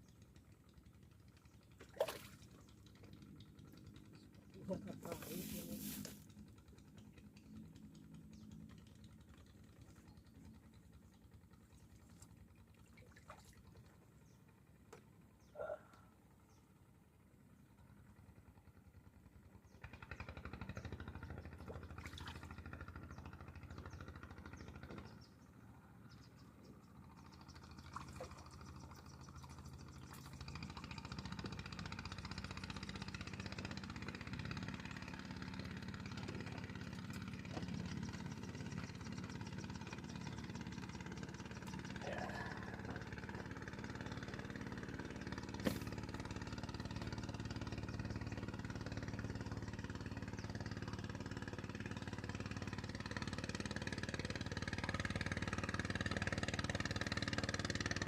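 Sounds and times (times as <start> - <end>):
motor engine running: 0.0 - 58.0.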